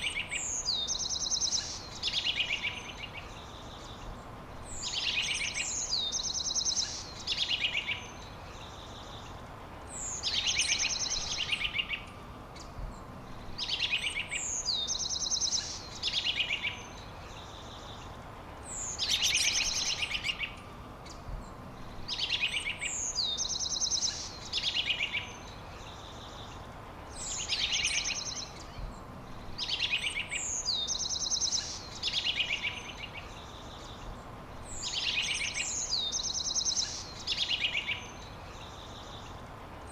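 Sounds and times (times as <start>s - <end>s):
faint steady hiss: 0.0s - 39.9s
songbird whistle and buzzy trill: 18.7s - 20.6s.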